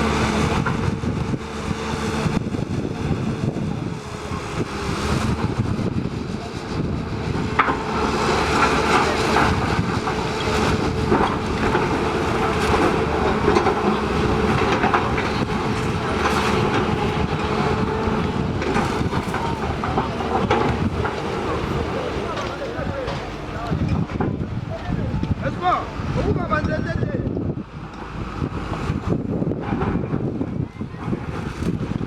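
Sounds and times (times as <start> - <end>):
machine rumbling: 0.0 - 32.0
rattling and knocking: 7.4 - 25.8.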